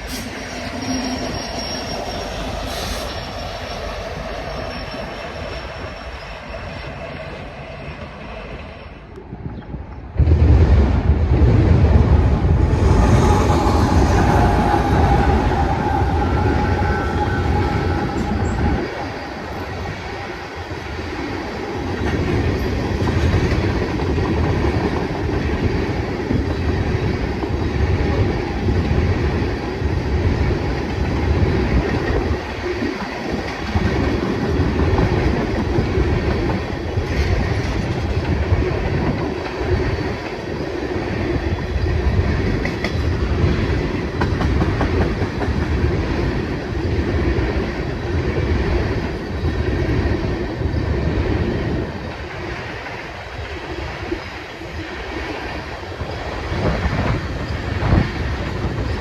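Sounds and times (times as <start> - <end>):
faint high wheel squeal: 0.0 - 9.0, 13.2 - 20.2
train wheels clacking over rail joints: 42.5 - 46.2.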